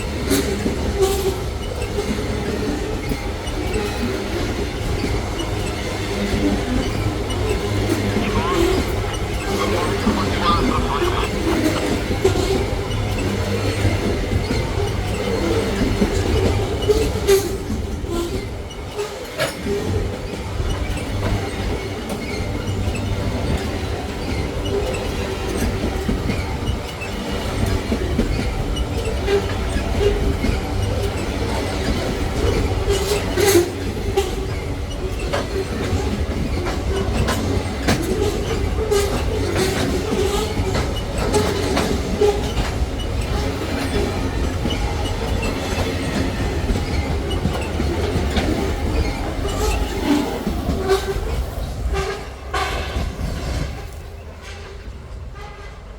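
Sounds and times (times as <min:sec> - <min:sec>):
clickety-clack of wheels on rail joints: 0:00.0 - 0:55.9
freight train rumbling: 0:00.0 - 0:55.9
wheels squealing: 0:00.4 - 0:19.2.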